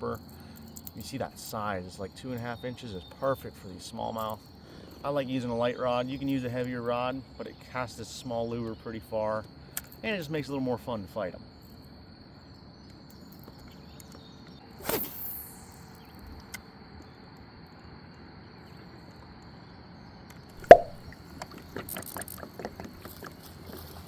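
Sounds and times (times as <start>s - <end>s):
lure splashing in water: 20.6s - 21.1s
sharp loud knock: 20.6s - 21.1s
small plops in water: 20.6s - 21.1s.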